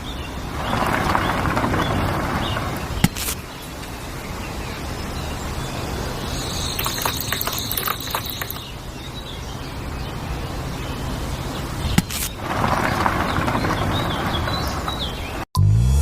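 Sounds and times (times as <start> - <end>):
rough rushing noise: 0.0 - 4.2, 11.7 - 15.4
birds chirping: 0.0 - 15.5.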